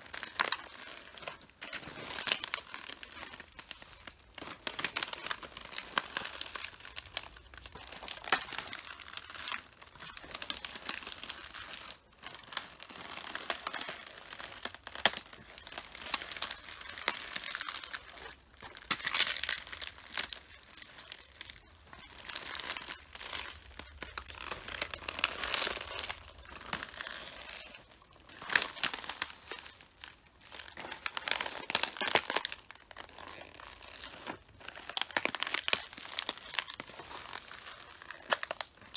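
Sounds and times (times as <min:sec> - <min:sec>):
cabbage leaves crunching underfoot: 0:12.8 - 0:38.9.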